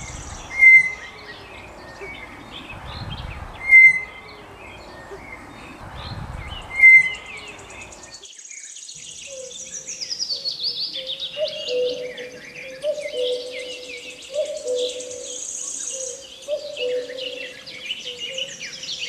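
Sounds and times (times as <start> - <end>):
descending bird trill: 0.0 - 8.2
bird and insect calls: 0.0 - 19.0.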